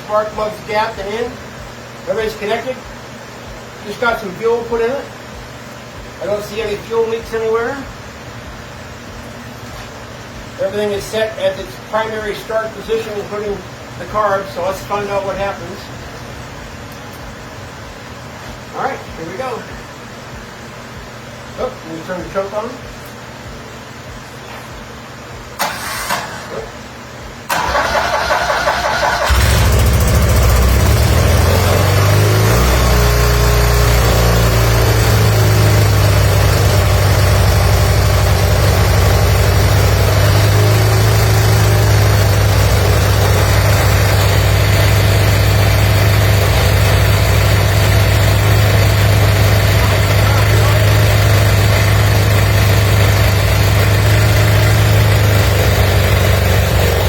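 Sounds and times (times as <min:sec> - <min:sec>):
engine starter cranking: 0:25.6 - 0:26.5, 0:27.5 - 0:30.8
motorcycle engine running: 0:29.2 - 0:57.0.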